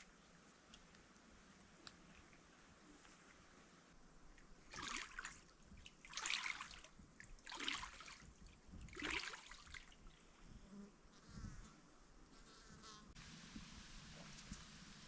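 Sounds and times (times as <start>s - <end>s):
water splashing: 4.3s - 10.1s.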